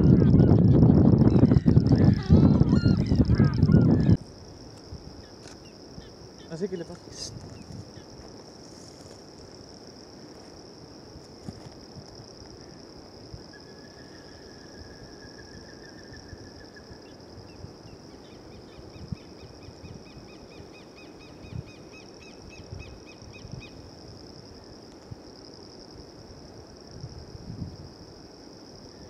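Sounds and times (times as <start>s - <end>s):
bird trilling: 0.0s - 4.2s
high-pitched insect trill: 0.0s - 29.0s.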